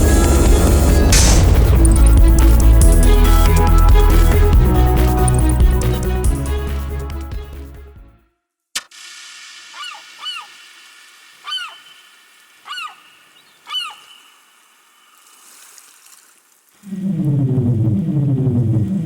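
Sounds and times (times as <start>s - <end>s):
faint steady hiss: 8.8s - 16.8s
honk-like bird calls: 12.7s - 13.1s.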